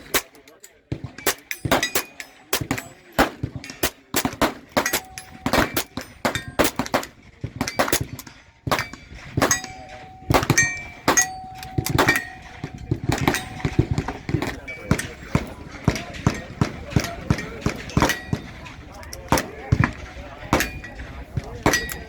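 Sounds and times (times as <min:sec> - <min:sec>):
gunshots: 0:00.0 - 0:22.0
steel targets ringing: 0:01.2 - 0:18.7, 0:20.4 - 0:22.0.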